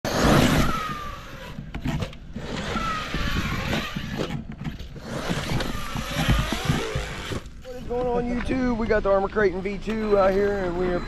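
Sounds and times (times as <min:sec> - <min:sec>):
electric motor whining: 0:00.1 - 0:08.4
rough running noise: 0:00.1 - 0:11.0.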